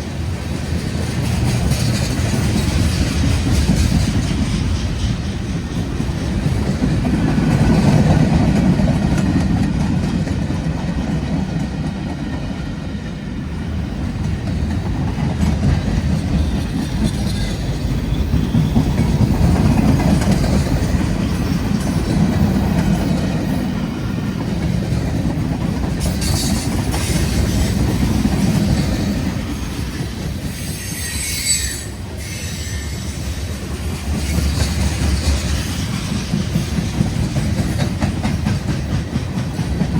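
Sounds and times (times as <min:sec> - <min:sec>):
freight train rolling past: 0:00.0 - 0:39.9
wheels clacking over rail joints: 0:00.2 - 0:13.0, 0:13.9 - 0:30.6, 0:33.3 - 0:39.9
wheel squeals: 0:30.5 - 0:33.5.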